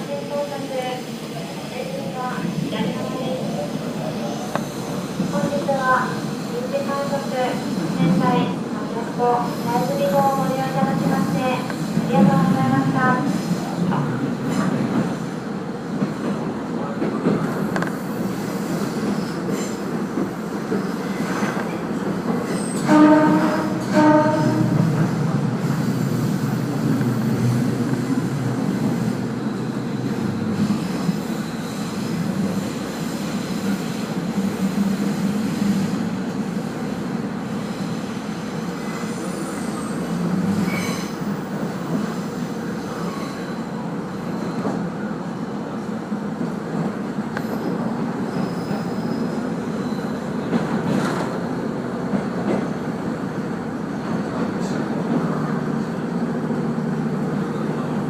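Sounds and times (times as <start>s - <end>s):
train wheels rumbling on rail: 0.0s - 58.0s
wheel or brake squeals: 40.6s - 41.2s, 48.2s - 50.3s.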